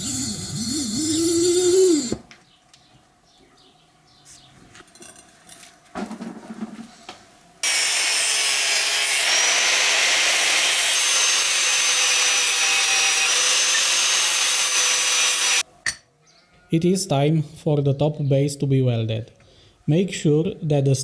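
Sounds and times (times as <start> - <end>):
angle grinder grinding steel: 0.0 - 2.2, 7.6 - 15.6.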